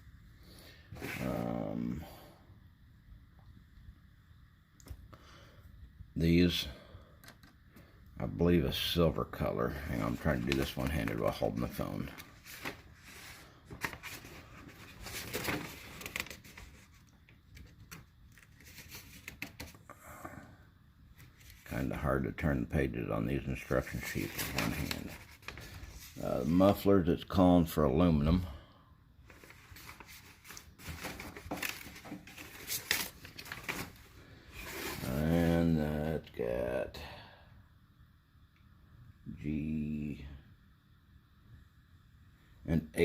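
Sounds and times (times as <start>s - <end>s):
paper pages rustling: 9.9s - 19.8s, 21.2s - 21.7s, 23.6s - 26.8s, 29.3s - 35.3s.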